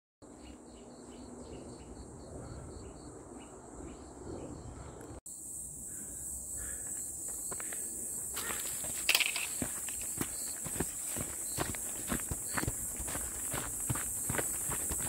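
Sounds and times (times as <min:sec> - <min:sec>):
insects shrilling drone: 0:00.3 - 0:15.0.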